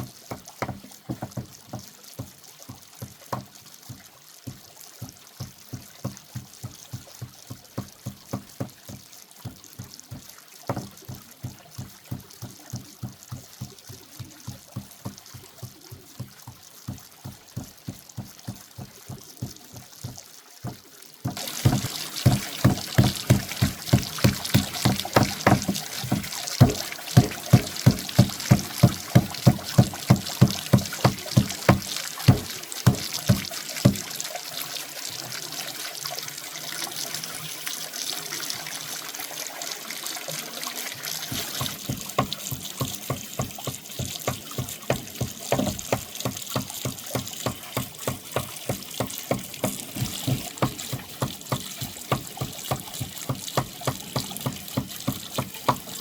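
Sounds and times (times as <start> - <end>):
running water: 0.0 - 56.0
sharp knocks: 0.3 - 1.9, 20.7 - 34.0, 41.3 - 56.0.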